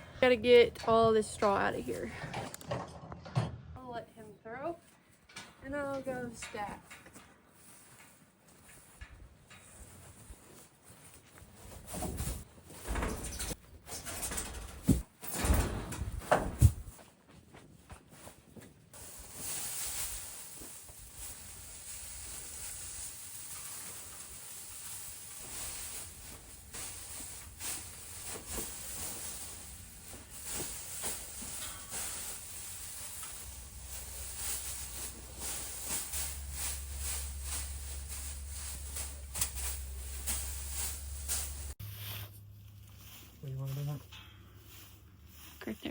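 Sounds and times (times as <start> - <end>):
straw rustling and crackling: 18.0 - 45.9
steady low rumble: 32.3 - 41.8.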